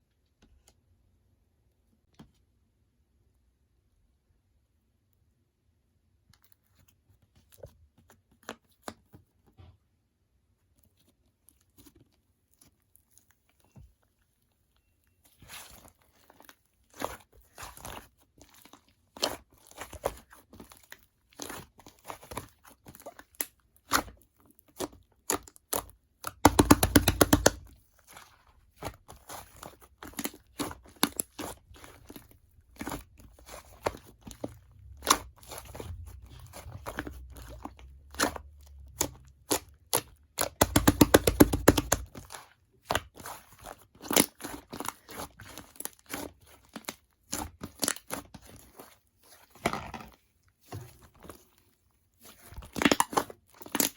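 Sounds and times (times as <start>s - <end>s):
slime squished by hand: 15.2s - 49.7s, 50.6s - 53.9s.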